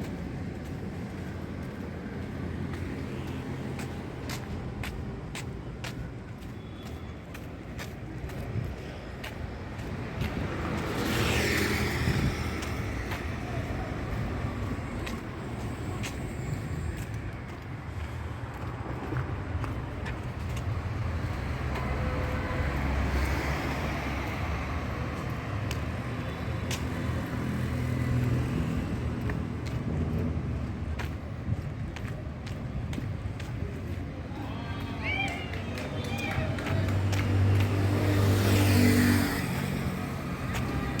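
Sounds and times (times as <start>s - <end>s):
road traffic rumble: 0.0s - 41.0s
vehicle passing: 9.6s - 30.4s, 34.3s - 41.0s.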